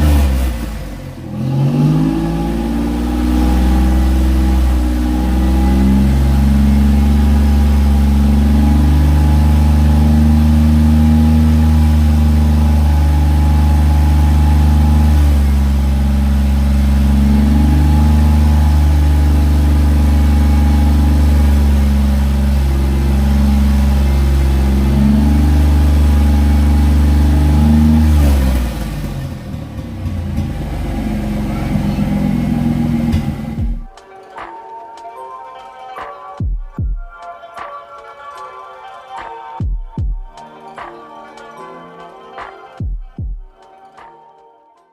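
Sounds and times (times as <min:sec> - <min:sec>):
car engine idling with throttle blips: 0:00.0 - 0:34.0
rough low noise: 0:00.0 - 0:34.0.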